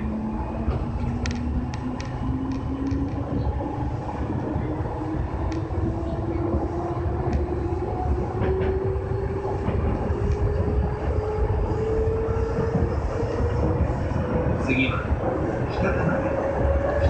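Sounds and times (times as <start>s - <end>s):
train wheels rumbling on rails: 0.0s - 17.0s
light track clicks: 0.5s - 17.0s.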